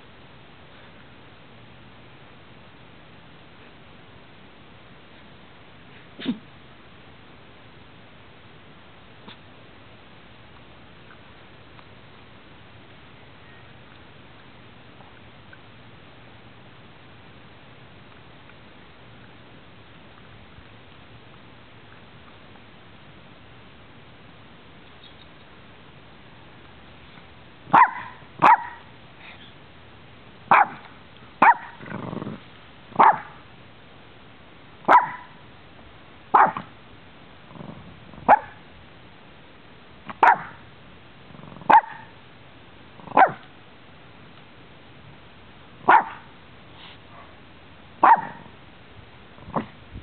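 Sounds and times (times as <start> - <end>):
dog barking: 27.7 - 28.9, 30.5 - 30.8, 31.4 - 31.8, 33.0 - 33.4, 34.9 - 35.4, 36.3 - 36.7, 38.3 - 38.6, 40.2 - 40.6, 41.7 - 42.1, 43.1 - 43.4, 45.9 - 46.3, 48.0 - 48.5
quiet low dog sounds: 45.8 - 48.6.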